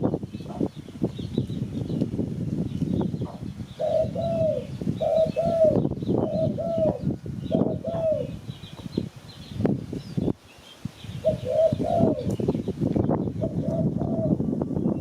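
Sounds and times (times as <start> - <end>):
small birds chirping: 0.0 - 15.0
dove cooing: 3.2 - 8.4, 11.2 - 12.4, 13.4 - 14.6.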